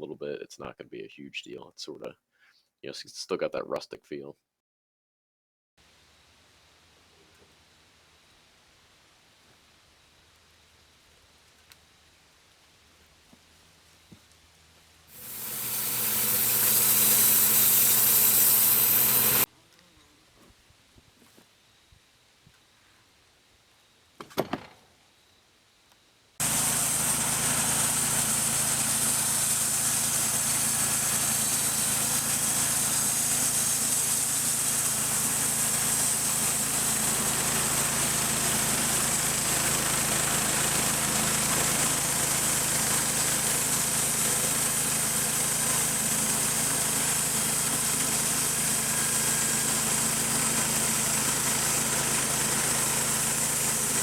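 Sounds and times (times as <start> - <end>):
sawmill engine running: 15.1 - 19.5, 26.4 - 54.0.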